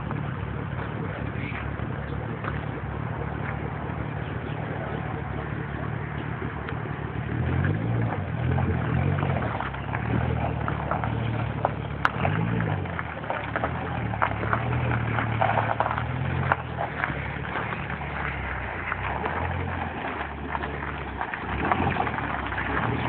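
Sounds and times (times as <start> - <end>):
car engine rumble revving: 0.0 - 23.0.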